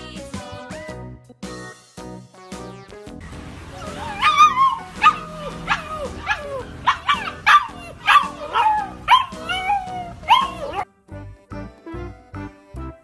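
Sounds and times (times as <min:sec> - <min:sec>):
music: 0:00.0 - 0:13.0
puppy yapping: 0:03.8 - 0:10.8.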